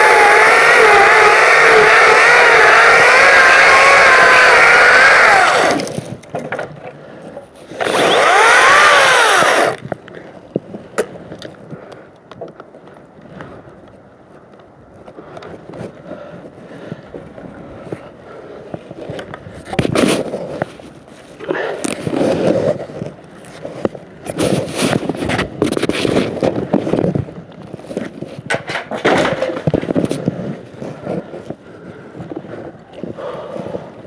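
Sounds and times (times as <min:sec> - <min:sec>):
electric chainsaw motor whining: 0:00.0 - 0:06.0, 0:07.8 - 0:09.8.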